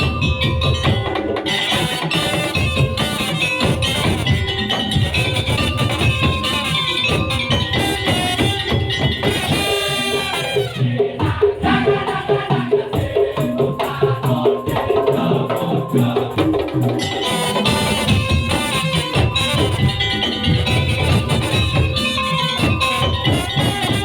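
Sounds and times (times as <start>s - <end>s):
percussion ensemble playing: 0.0s - 24.0s.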